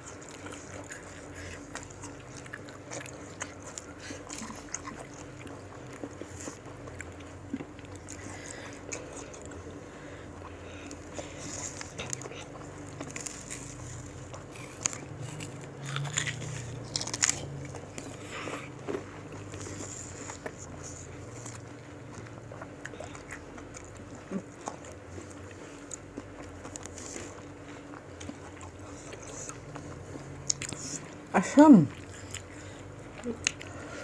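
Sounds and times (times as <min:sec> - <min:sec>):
crunchy bites of raw fruit: 0:10.9 - 0:21.7.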